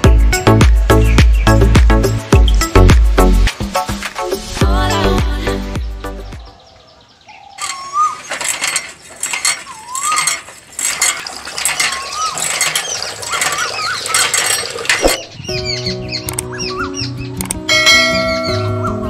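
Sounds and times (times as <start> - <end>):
squeaky chirps: 7.4 - 17.5
hand pump clicking and rattling: 7.6 - 15.4.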